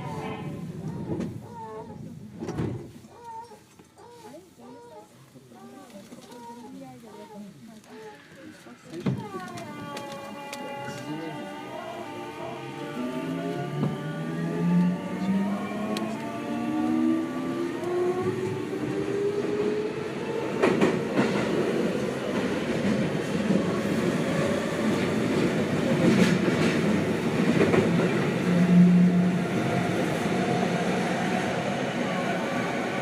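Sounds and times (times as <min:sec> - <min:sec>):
train running rumble: 0:09.0 - 0:33.0
electric train motor tones: 0:09.6 - 0:19.0.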